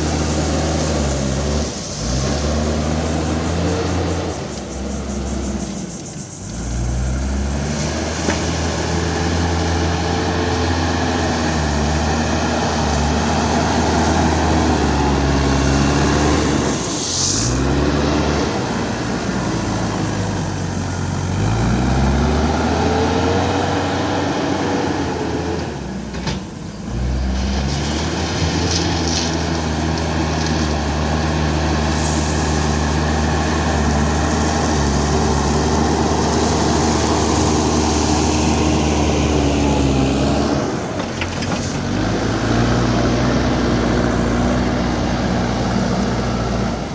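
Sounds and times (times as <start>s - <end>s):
diesel engine under load: 0.0s - 46.9s.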